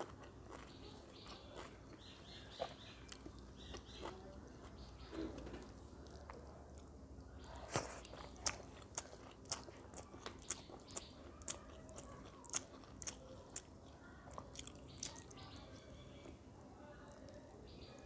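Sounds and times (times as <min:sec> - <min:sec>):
person chewing food: 0:00.0 - 0:05.0, 0:05.6 - 0:15.4.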